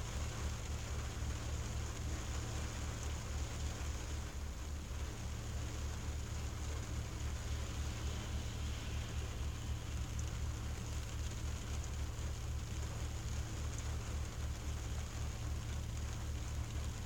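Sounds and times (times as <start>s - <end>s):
rain on a car windshield: 0.0s - 17.0s
low rumble: 3.4s - 14.7s.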